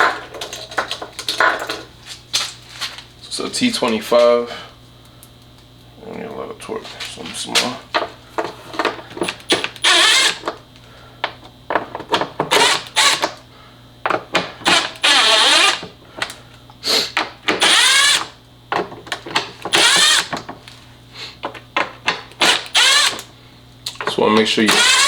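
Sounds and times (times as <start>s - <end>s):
electric screwdriver whirring: 9.2s - 10.5s, 12.5s - 13.4s, 14.6s - 15.9s, 17.5s - 18.4s, 19.6s - 20.4s, 22.4s - 23.3s, 24.7s - 25.0s.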